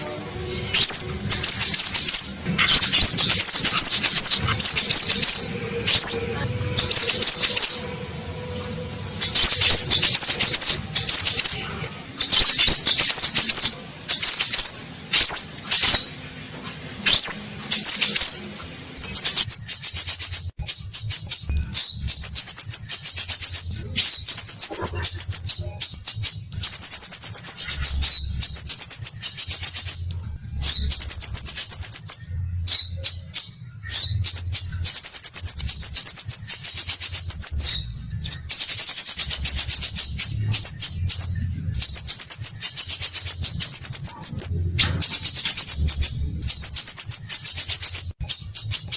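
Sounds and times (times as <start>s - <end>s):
bird singing sharp notes: 0.0s - 16.3s.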